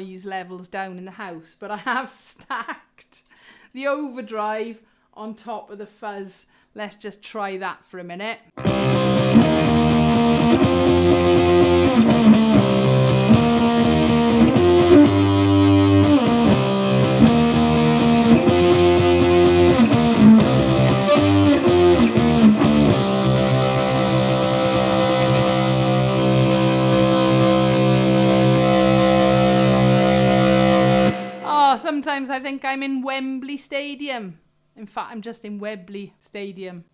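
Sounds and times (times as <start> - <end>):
distorted electric ukulele chords: 8.6 - 31.8.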